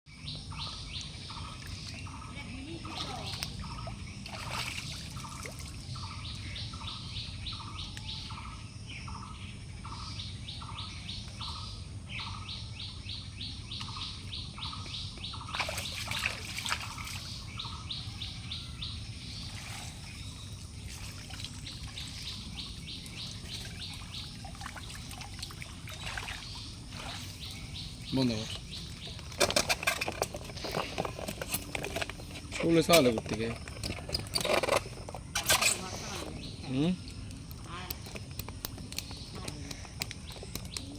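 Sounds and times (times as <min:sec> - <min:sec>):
birds calling: 0:00.1 - 0:40.9
outdoor background noise: 0:00.1 - 0:40.9.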